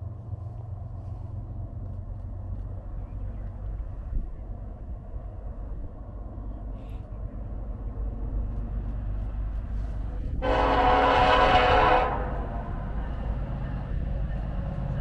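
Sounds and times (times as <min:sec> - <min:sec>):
low rumble: 0:00.0 - 0:15.0
locomotive air horn blast: 0:10.4 - 0:12.8.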